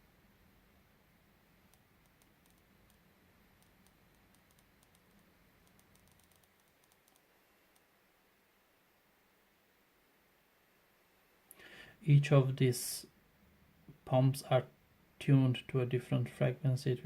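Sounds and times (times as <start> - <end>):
faint low hum: 0.0 - 17.0
faint small clicks: 1.7 - 3.0, 3.6 - 7.9.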